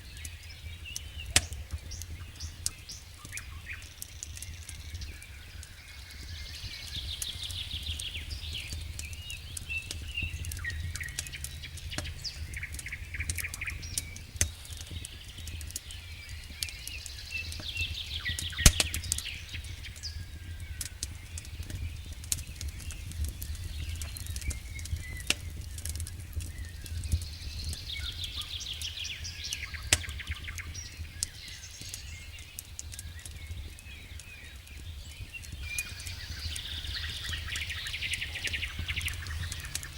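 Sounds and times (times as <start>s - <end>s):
fire popping: 0.0s - 39.9s
songbird chirps and trills: 0.0s - 39.9s
wood fire crackling: 0.0s - 39.9s
low rumble: 10.2s - 14.3s.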